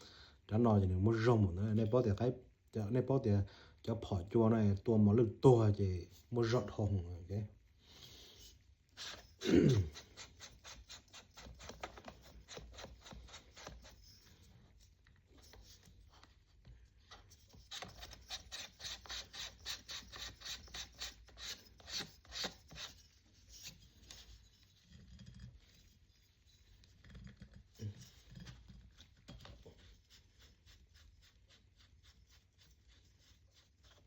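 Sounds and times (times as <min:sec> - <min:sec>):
light clicks and scrapes: 0:07.5 - 0:34.0.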